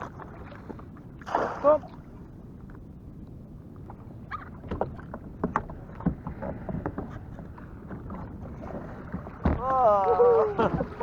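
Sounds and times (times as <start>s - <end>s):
water slapping against hull: 0.0s - 2.8s, 3.8s - 11.0s
low rumble of wind: 0.0s - 11.0s
knocks on kayak: 9.1s - 9.7s.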